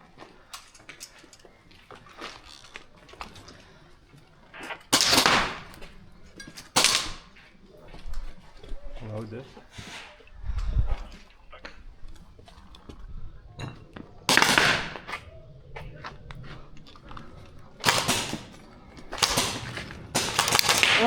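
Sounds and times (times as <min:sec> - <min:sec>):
airsoft gun shots: 0:04.9 - 0:05.9, 0:06.8 - 0:07.4, 0:14.3 - 0:15.3, 0:17.8 - 0:21.0.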